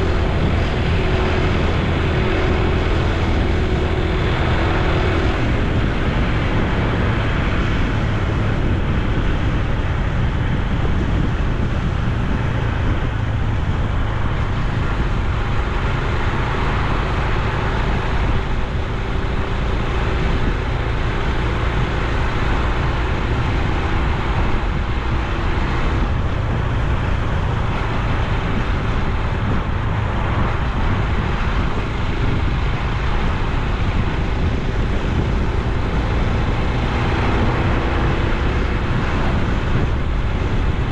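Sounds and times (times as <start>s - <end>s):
wind on microphone: 0.0s - 40.9s.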